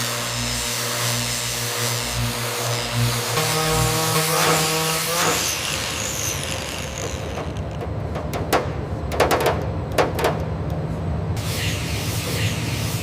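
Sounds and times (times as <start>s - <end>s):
steady mechanical hum: 0.0s - 13.0s
sharp clicks and knocks: 6.7s - 10.8s
hiss: 11.4s - 13.0s.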